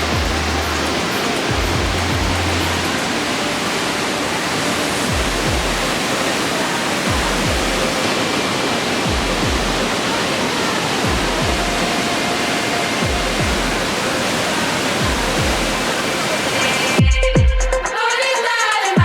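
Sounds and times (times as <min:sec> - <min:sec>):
background music with bass beat: 0:00.0 - 0:02.9, 0:05.1 - 0:06.0, 0:13.0 - 0:13.9, 0:17.0 - 0:19.0
waterfall rushing: 0:00.0 - 0:17.0.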